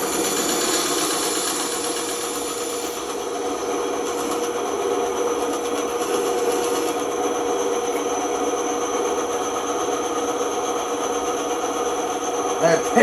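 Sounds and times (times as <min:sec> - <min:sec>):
band saw cutting wood: 0:00.0 - 0:10.2.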